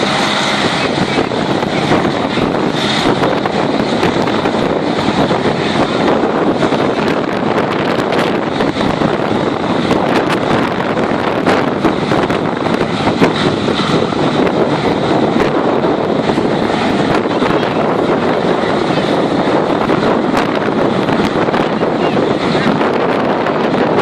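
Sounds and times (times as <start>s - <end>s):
hovercraft engine and fan: 0.0s - 24.0s
wind buffeting microphone: 0.0s - 24.0s.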